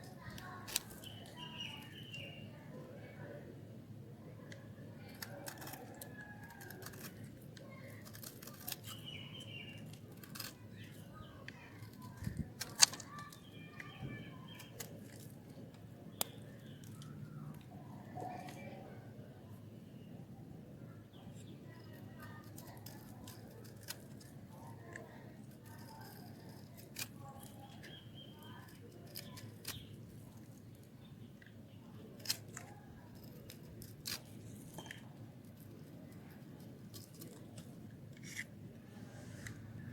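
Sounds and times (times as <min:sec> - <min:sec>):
faint birds chirping: 0:00.0 - 0:03.6, 0:04.2 - 0:38.0
blade cutting dry soap: 0:05.0 - 0:18.7, 0:21.8 - 0:30.9, 0:32.1 - 0:38.5.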